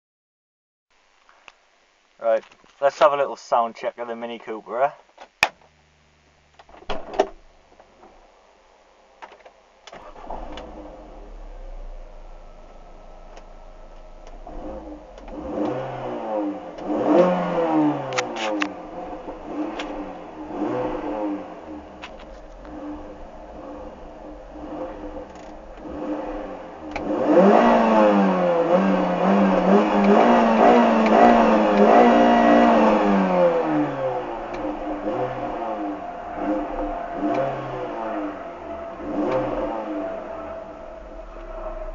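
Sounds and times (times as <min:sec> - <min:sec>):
car engine starting and idling: 0:06.4 - 0:41.9
click: 0:09.2 - 0:10.7, 0:15.2 - 0:15.8, 0:26.9 - 0:27.1, 0:34.5 - 0:34.7, 0:39.3 - 0:39.5.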